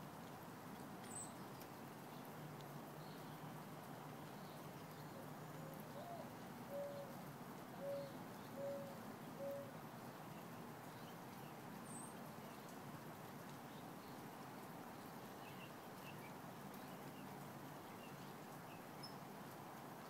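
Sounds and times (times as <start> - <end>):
light rain: 0.0 - 20.0.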